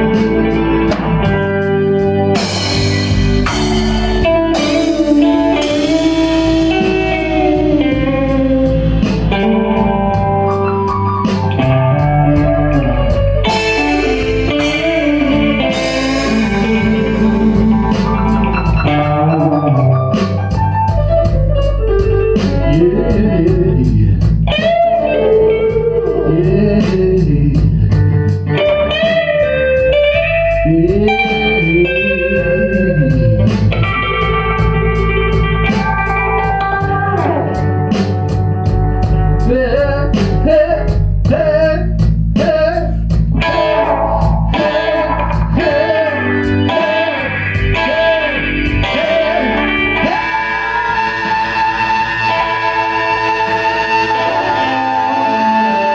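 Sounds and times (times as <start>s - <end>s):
blues-rock band playing: 0.0s - 55.9s
electric guitar bending notes: 0.0s - 55.9s
cymbal strikes: 2.4s - 6.6s.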